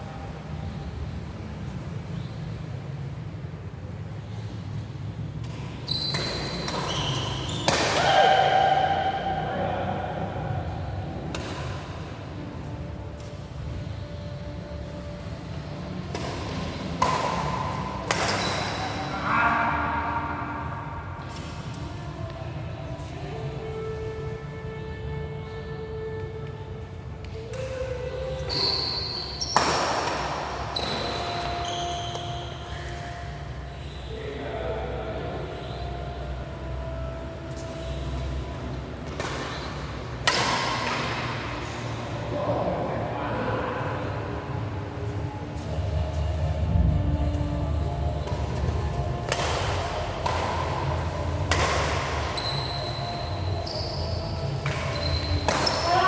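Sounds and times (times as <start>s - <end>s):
shoes squeaking on court floor: 1.5s - 3.2s, 4.2s - 8.6s, 11.1s - 20.6s, 27.2s - 42.6s, 43.8s - 56.0s
racket hitting shuttlecock: 5.4s - 9.3s, 11.2s - 12.2s, 16.0s - 19.1s, 28.4s - 33.0s, 39.0s - 42.0s, 48.2s - 56.0s
low rumble: 45.8s - 49.2s.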